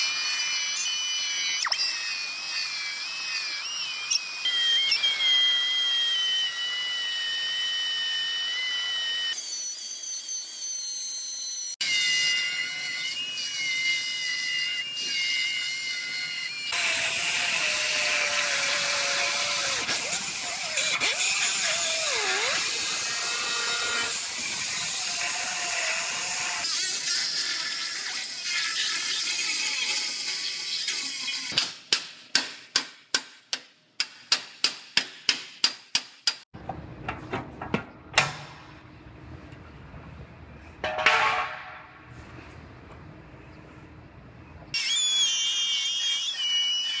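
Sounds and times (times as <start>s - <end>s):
power tool cutting steel: 0.0s - 31.6s, 44.8s - 47.0s.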